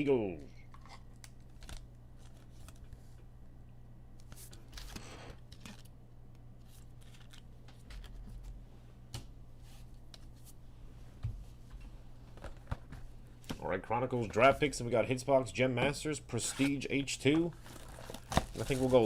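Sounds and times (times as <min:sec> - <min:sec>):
low electrical hum: 0:00.0 - 0:19.0
trading cards clicking and rustling: 0:06.6 - 0:08.6, 0:16.4 - 0:19.0.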